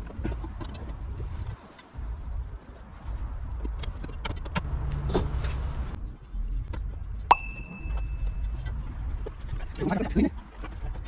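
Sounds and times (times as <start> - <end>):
sharp metallic clink: 7.3 - 8.5
low hum: 7.3 - 8.8.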